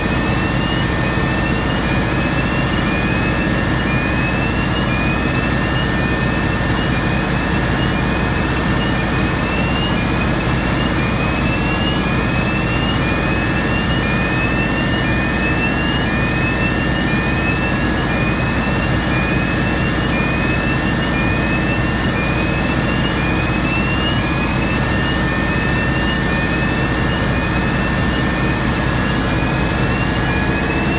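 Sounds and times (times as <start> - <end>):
diesel engine running: 0.0 - 30.9
high whine: 0.0 - 30.9.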